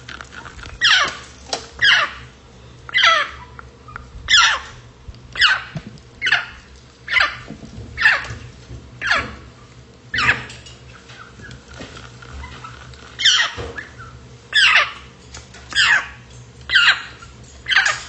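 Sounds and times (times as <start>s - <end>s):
parrot calling: 0.8s - 4.8s, 5.4s - 11.7s, 12.3s - 18.0s.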